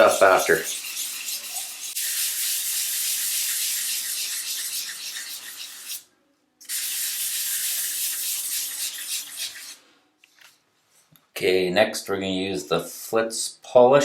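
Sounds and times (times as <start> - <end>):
sandpaper wet sanding: 0.0 - 6.0, 6.7 - 9.8.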